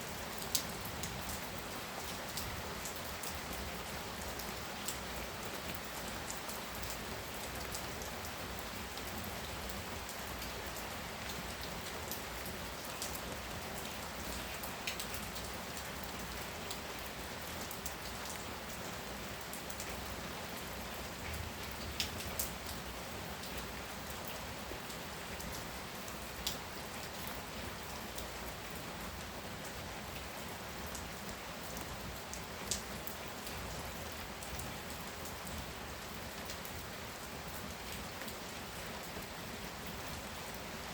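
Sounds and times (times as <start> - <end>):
sharp taps of raindrops: 21.2 - 22.8.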